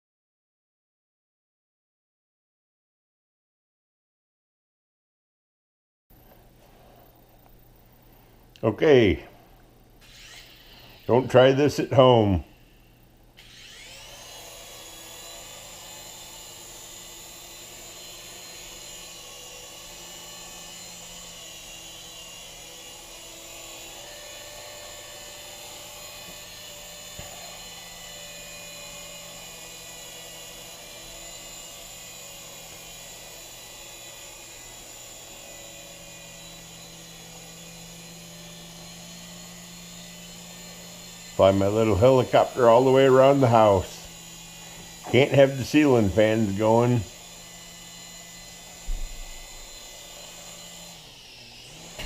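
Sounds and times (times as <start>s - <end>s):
toy helicopter rotor whine: 10.0s - 12.8s, 13.4s - 52.0s.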